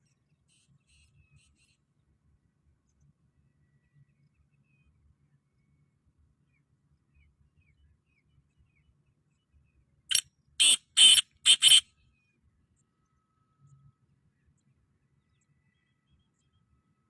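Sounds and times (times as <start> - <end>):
bird harsh grating call: 10.6 - 11.8.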